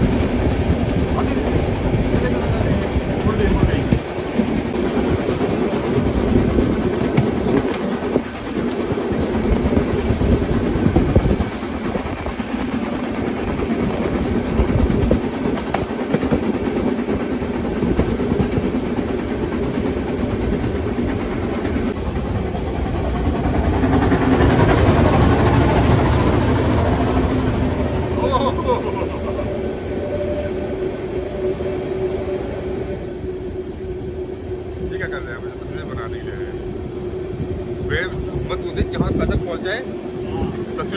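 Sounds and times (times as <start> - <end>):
train carriages rumbling on rails: 0.0 - 40.9.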